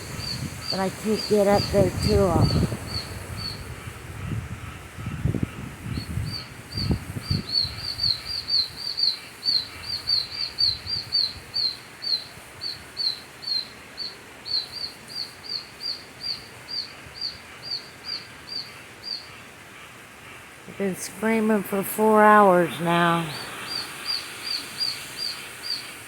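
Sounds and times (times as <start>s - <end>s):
rain hiss: 0.0s - 26.0s
baby birds distress chirps: 0.1s - 3.9s.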